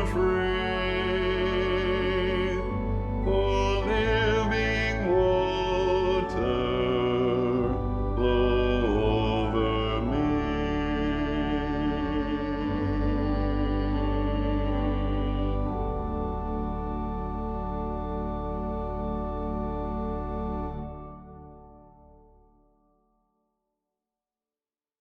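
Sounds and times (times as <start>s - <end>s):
choir singing: 0.0s - 16.0s
low sustained accompaniment: 0.0s - 22.0s.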